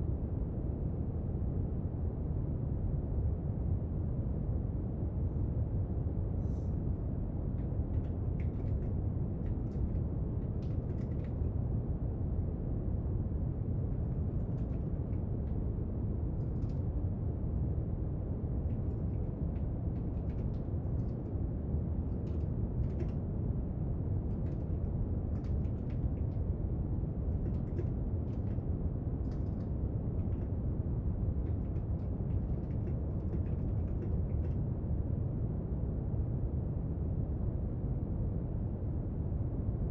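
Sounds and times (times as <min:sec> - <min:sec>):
faint clicks and taps at desk: 0:07.6 - 0:11.5, 0:18.7 - 0:21.3, 0:22.1 - 0:23.2, 0:24.3 - 0:26.4, 0:27.3 - 0:28.7, 0:29.3 - 0:30.5, 0:31.4 - 0:34.6.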